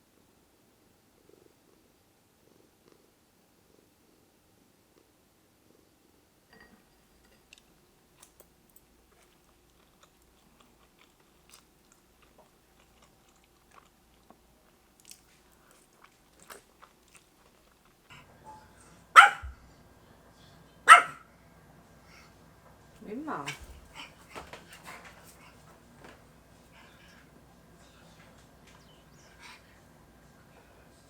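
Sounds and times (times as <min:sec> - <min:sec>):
faint crunching and clicks: 0:07.2 - 0:18.2
dog barking: 0:19.1 - 0:19.6, 0:20.9 - 0:21.3.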